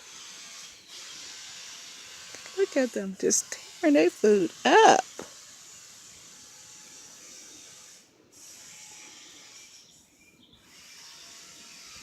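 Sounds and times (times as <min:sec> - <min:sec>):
faint outdoor hiss: 0:00.0 - 0:06.3.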